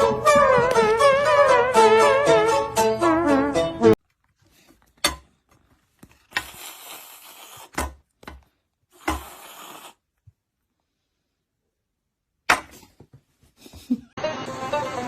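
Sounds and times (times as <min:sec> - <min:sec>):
music: 0:00.0 - 0:04.0, 0:14.2 - 0:15.0.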